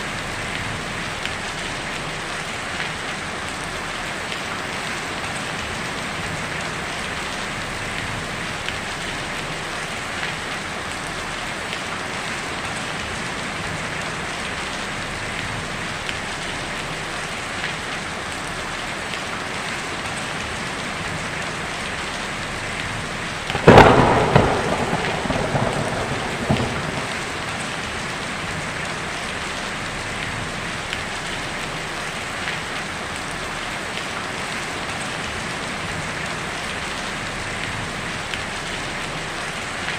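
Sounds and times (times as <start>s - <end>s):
heavy rain on a tin roof: 0.0s - 39.9s
thunderclap: 23.5s - 28.8s.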